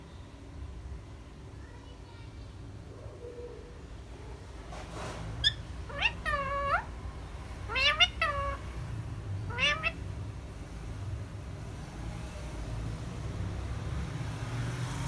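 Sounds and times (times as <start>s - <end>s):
parrot mimicking cat meow: 5.4s - 6.9s, 7.7s - 8.6s, 9.5s - 10.0s.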